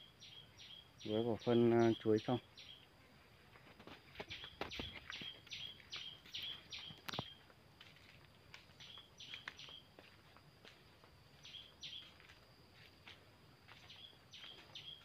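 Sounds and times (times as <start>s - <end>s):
small bird chirping: 0.0s - 2.9s, 4.1s - 7.5s, 8.7s - 10.2s, 11.3s - 12.3s, 13.7s - 15.0s
footsteps on dirt path: 2.7s - 15.0s.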